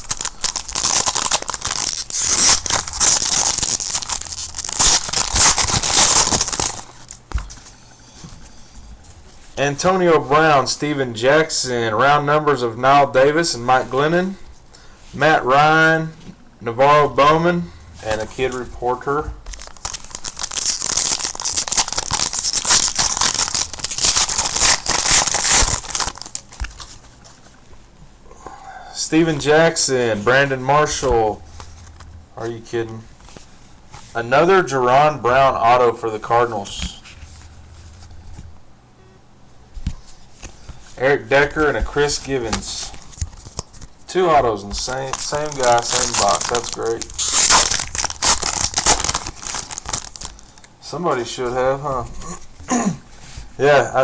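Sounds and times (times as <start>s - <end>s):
wrapper tearing and crinkling: 0.0s - 7.2s, 19.4s - 27.0s, 44.7s - 50.7s.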